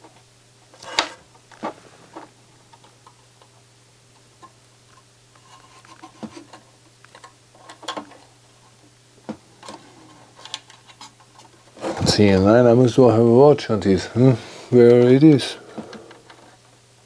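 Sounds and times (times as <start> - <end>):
steady low hum: 11.6 - 17.0.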